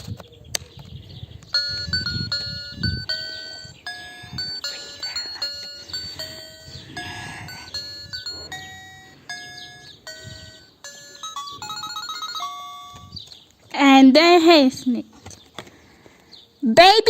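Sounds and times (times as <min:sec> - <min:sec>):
tinny beeping melody: 0:01.5 - 0:13.2.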